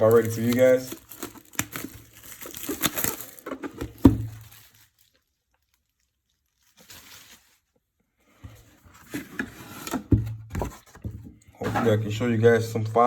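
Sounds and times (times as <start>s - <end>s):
plastic packaging crinkling and tearing: 0.0s - 7.9s.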